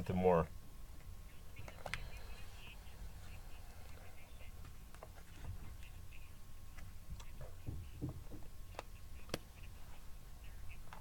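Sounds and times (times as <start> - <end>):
low background hum: 0.0 - 11.0
faint muffled voice: 1.3 - 8.2.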